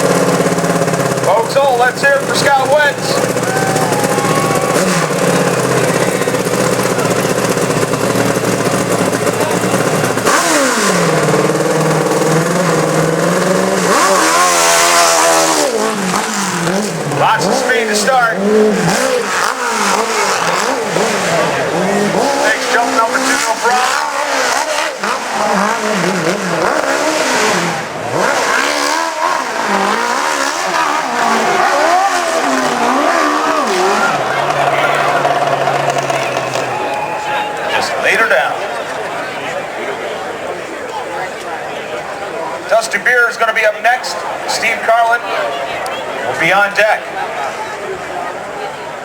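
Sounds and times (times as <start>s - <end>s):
motorcycle engine revving: 0.0s - 39.4s.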